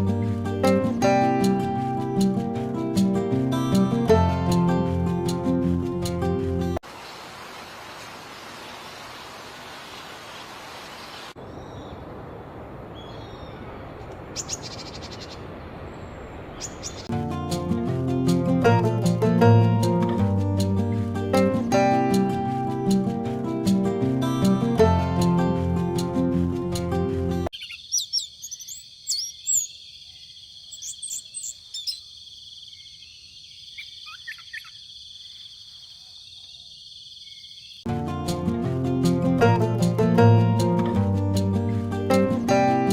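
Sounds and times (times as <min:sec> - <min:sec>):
music: 0:00.0 - 0:06.8, 0:17.1 - 0:27.5, 0:37.9 - 0:42.9
songbird calling: 0:11.1 - 0:12.0, 0:12.9 - 0:17.1, 0:27.5 - 0:37.9
songbird chirping and whistling: 0:27.5 - 0:32.1, 0:32.7 - 0:35.4.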